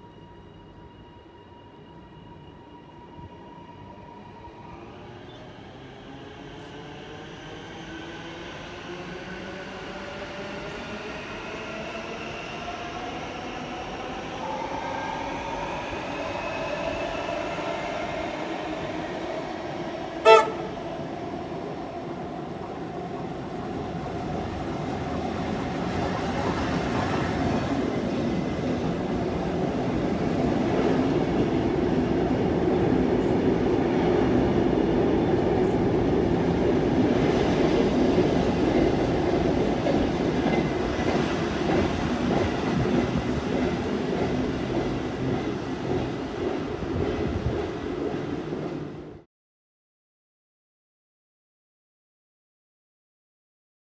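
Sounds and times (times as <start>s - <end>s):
electric train running past: 0.0s - 49.2s
short horn toot: 20.2s - 20.8s.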